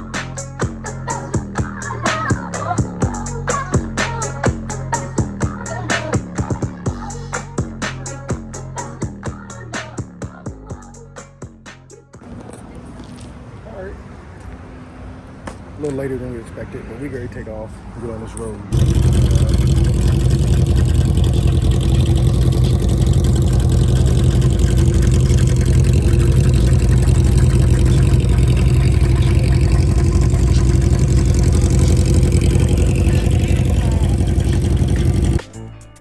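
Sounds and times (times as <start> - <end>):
motorcycle engine running: 18.7 - 35.5.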